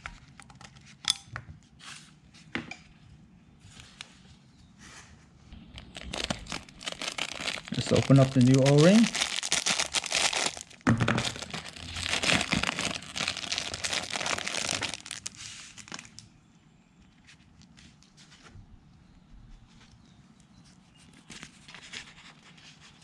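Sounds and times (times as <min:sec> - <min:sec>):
plastic packaging crinkling: 0:05.6 - 0:16.2.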